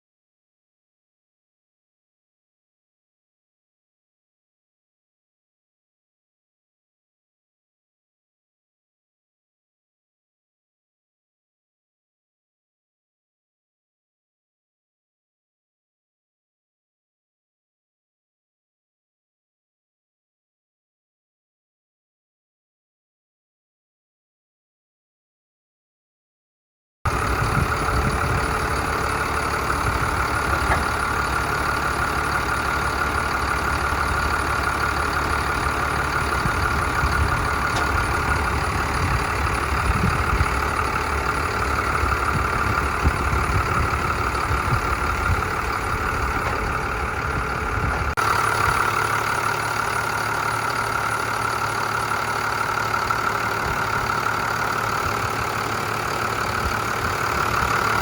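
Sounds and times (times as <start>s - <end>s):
diesel engine idling: 27.1s - 58.0s.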